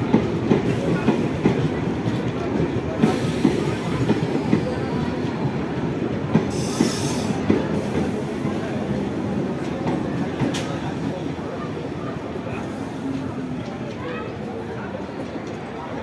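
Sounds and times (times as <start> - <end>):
train wheels clattering on track: 0.0 - 11.6.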